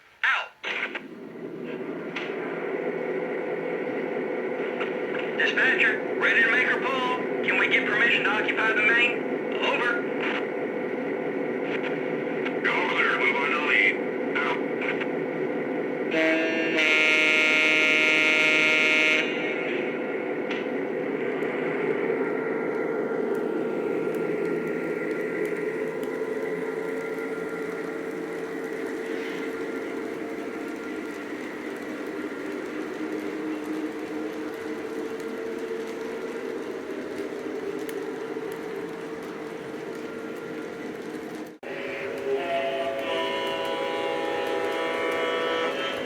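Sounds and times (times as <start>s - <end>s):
model train diesel engine hum: 0.0s - 46.0s
steady hiss and rumble: 0.0s - 46.0s
model locomotive diesel horn: 16.1s - 19.6s, 41.6s - 46.0s.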